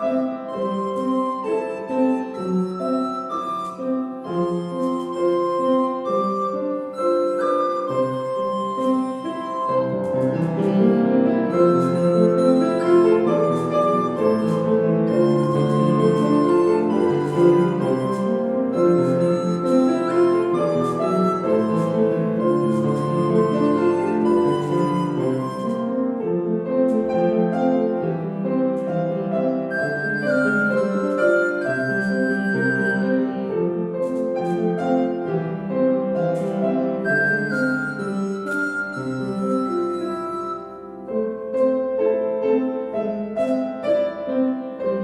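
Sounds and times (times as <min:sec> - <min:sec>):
lullaby on piano: 0:00.0 - 0:45.0.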